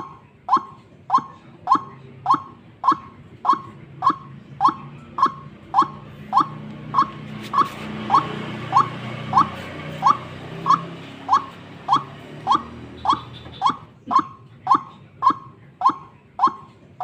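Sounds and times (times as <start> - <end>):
waterhen calling: 0.0 - 16.7.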